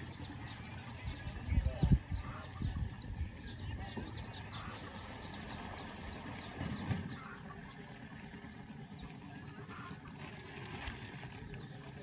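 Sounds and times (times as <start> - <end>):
small birds chirping: 0.0 - 12.0
low wind rumble on microphone: 1.0 - 4.4.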